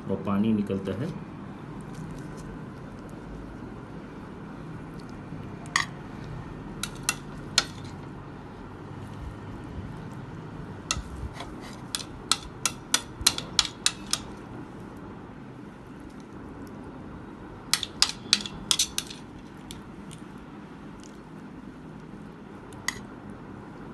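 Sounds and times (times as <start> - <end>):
metal utensils clinking on plate: 6.8 - 8.0, 17.7 - 19.8.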